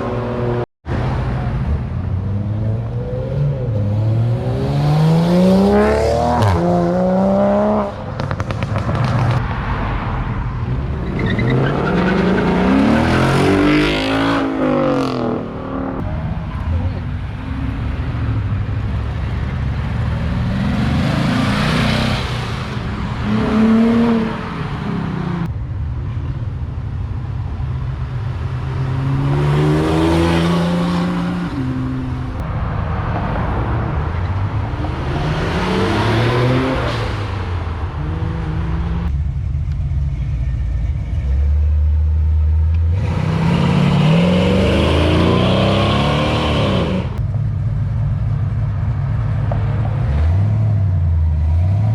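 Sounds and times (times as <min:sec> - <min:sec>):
low engine rumble: 0:37.6 - 0:43.0.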